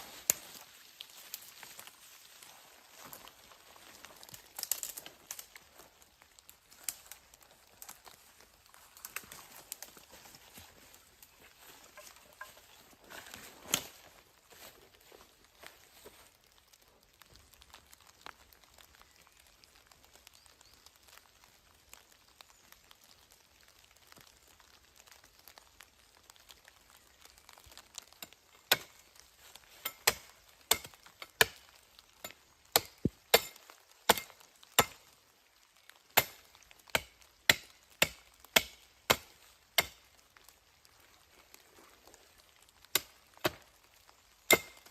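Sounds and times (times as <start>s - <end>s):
wood chopping strikes: 29.8s - 31.6s, 32.2s - 35.0s, 36.2s - 40.0s, 42.9s - 43.6s, 44.5s - 44.9s.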